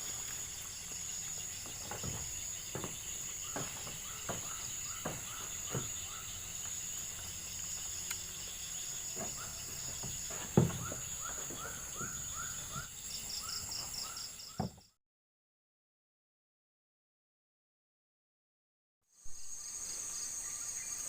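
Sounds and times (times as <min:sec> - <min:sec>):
insect trill: 0:00.0 - 0:15.0, 0:19.1 - 0:21.0.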